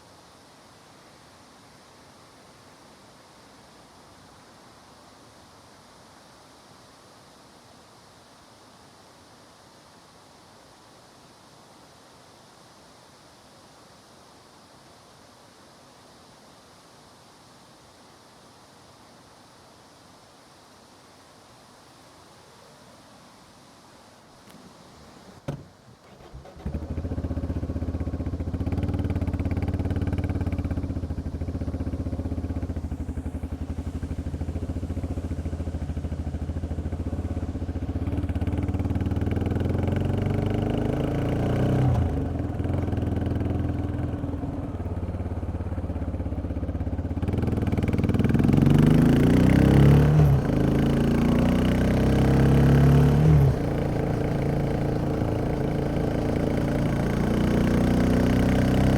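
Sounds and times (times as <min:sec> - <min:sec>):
motorcycle engine idling: 0:25.5 - 0:49.0, 0:53.1 - 0:58.9.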